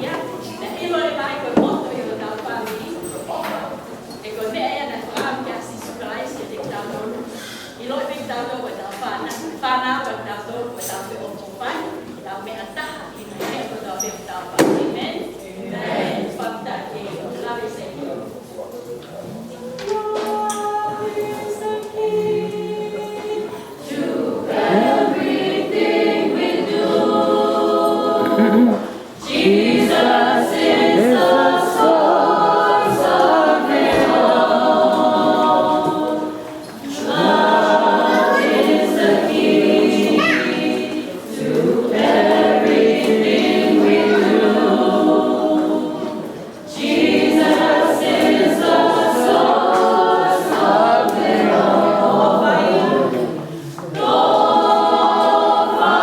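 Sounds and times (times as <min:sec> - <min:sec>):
vocal group singing a cappella: 0:15.3 - 0:17.5, 0:19.8 - 0:56.0.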